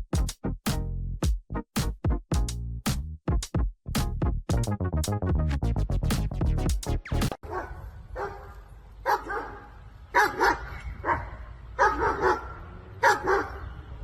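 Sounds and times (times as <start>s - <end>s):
dog barking: 7.4s - 13.7s.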